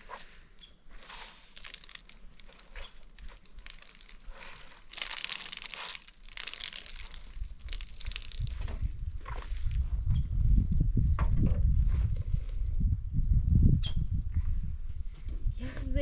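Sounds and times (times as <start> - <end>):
dry rustling and crinkling: 0.0 - 9.8.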